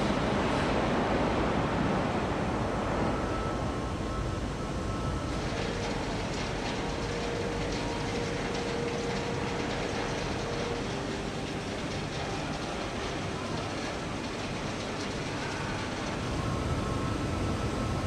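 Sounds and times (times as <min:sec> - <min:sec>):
heavy machinery rumble: 0:00.0 - 0:18.0.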